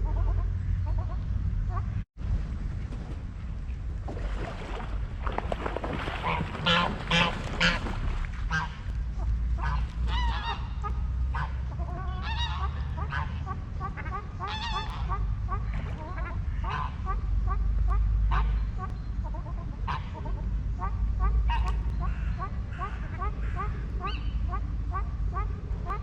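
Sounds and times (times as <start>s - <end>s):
low rumble: 0.0s - 26.0s
waterfowl honking: 6.0s - 26.0s.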